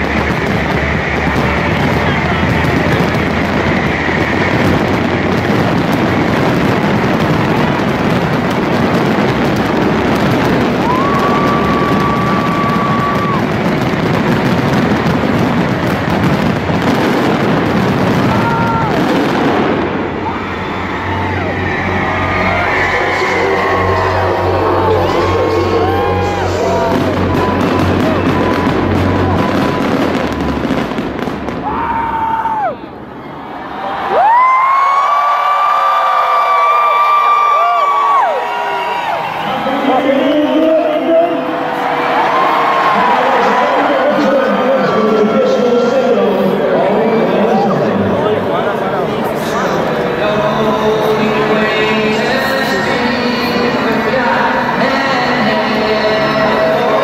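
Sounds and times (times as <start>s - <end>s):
loud music: 0.0s - 32.0s, 49.5s - 57.0s
fireworks booming and crackling: 0.0s - 33.2s.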